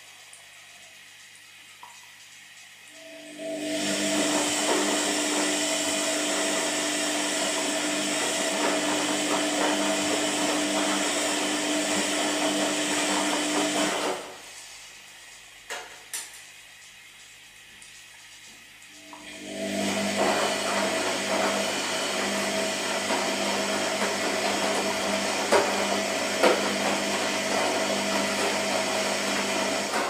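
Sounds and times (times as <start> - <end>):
electric appliance motor humming: 2.9 - 14.4, 18.9 - 30.0.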